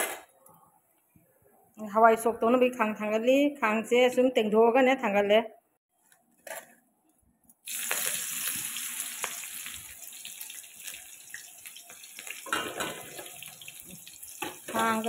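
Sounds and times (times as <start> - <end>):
hot oil sizzling: 7.6 - 15.0.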